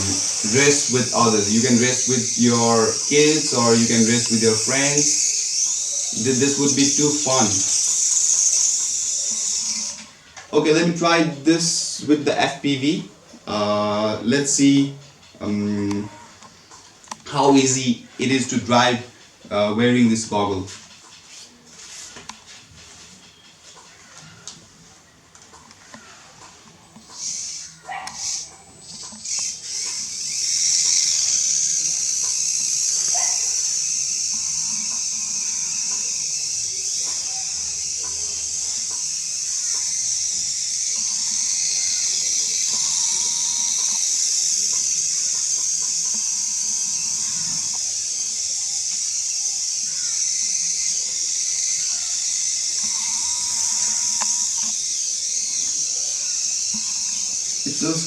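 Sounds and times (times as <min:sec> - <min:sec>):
toy car motor whining: 0:00.0 - 0:10.1, 0:27.1 - 0:58.0.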